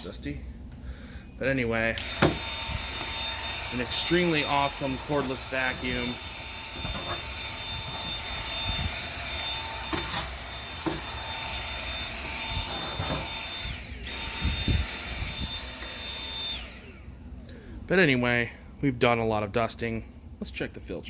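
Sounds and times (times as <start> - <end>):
vacuum cleaner motor whine: 1.9 - 17.6.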